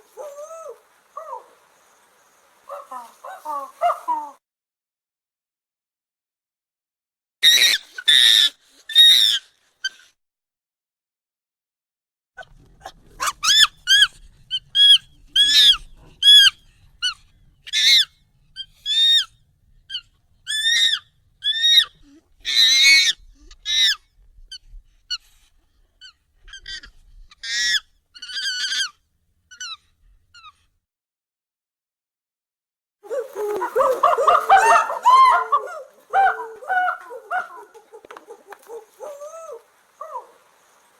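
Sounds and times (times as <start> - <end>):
high-pitched monkey calls: 7.4 - 10.1, 13.2 - 25.2, 26.0 - 30.6, 33.0 - 40.4.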